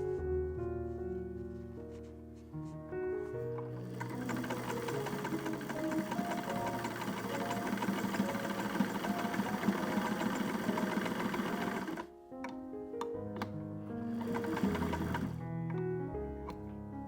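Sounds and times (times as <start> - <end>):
sewing machine rattling: 3.8 - 12.1, 14.1 - 15.4.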